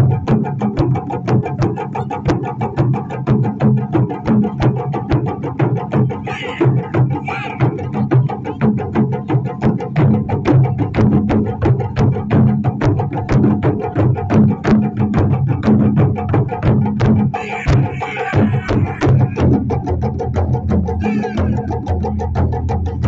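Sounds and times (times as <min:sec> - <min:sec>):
drum ensemble playing fast rhythm: 0:00.0 - 0:23.0.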